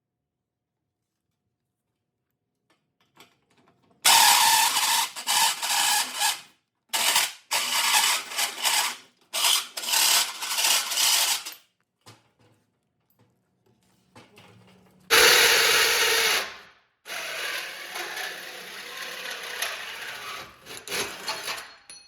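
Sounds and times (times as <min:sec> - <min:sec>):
tool rasping against metal: 0:17.2 - 0:21.7.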